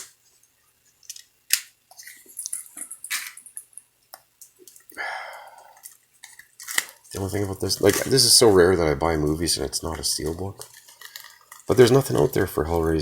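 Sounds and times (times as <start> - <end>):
plastic shrink-wrap crinkling: 5.7 - 13.0
plastic wrap tearing: 6.2 - 13.0.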